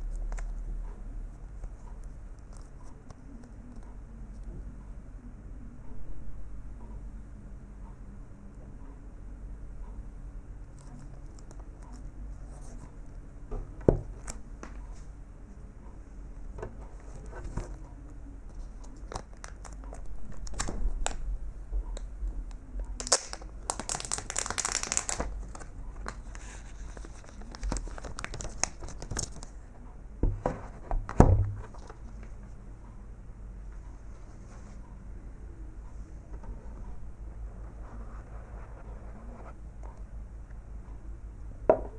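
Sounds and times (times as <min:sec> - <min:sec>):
plastic film tearing and crinkling: 0:23.0 - 0:26.4, 0:27.0 - 0:29.5.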